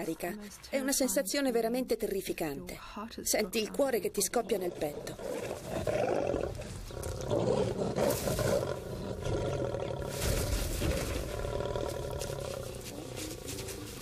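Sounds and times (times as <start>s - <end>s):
lioness growling and roaring: 4.5s - 14.0s.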